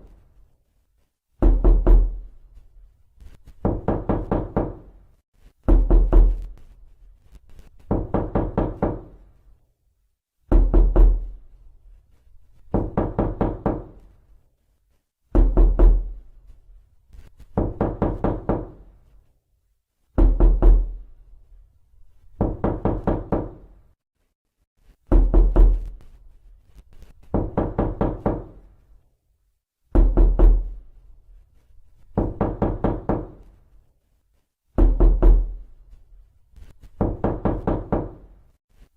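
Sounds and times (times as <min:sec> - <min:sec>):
knuckles knocking on wooden door: 0:01.4 - 0:02.2, 0:03.6 - 0:04.9, 0:05.7 - 0:06.5, 0:07.9 - 0:09.2, 0:10.5 - 0:11.4, 0:12.7 - 0:14.0, 0:15.4 - 0:16.1, 0:17.6 - 0:18.8, 0:20.2 - 0:21.0, 0:22.4 - 0:23.7, 0:25.1 - 0:25.9, 0:27.3 - 0:28.6, 0:29.9 - 0:30.8, 0:32.2 - 0:33.5, 0:34.8 - 0:35.6, 0:37.0 - 0:38.2.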